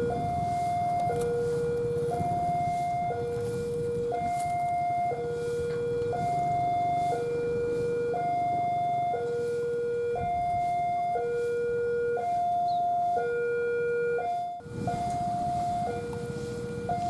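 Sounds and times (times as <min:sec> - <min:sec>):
two-tone level-crossing alarm: 0:00.0 - 0:17.0.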